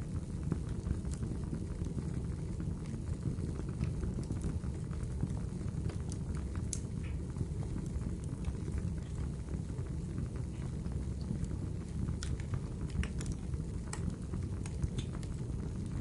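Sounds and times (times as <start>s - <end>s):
fire burning rumble: 0.0s - 16.0s
fire pops and crackles: 0.0s - 16.0s.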